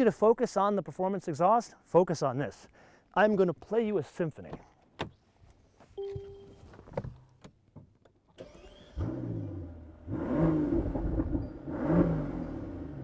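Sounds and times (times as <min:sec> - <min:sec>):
starter motor whine: 0:08.4 - 0:09.6
car engine revving: 0:08.5 - 0:13.0.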